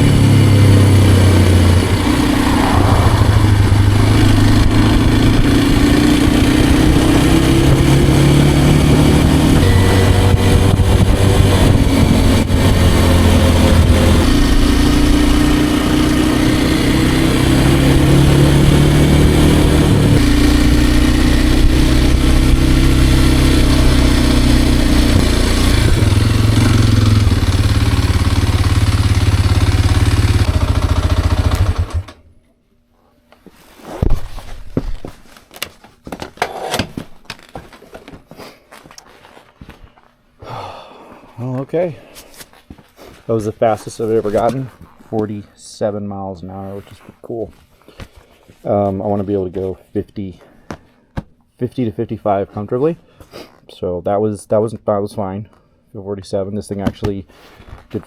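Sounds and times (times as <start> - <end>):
motorcycle engine under load: 0.0 - 32.4
wind on microphone: 8.6 - 14.6.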